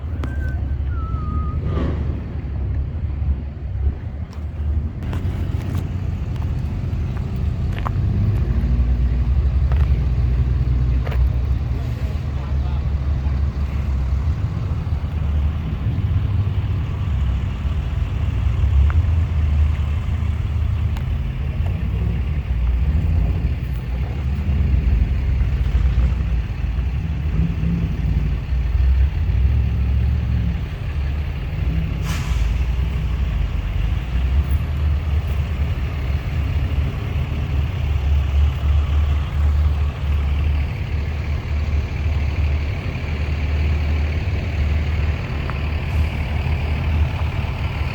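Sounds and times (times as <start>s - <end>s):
heavy truck engines rumbling: 0.0s - 47.9s.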